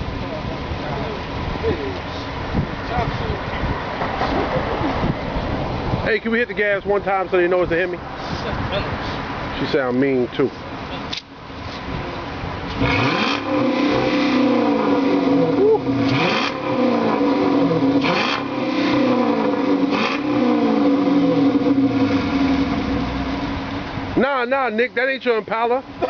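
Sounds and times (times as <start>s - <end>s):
car engine revving: 10.8s - 24.2s.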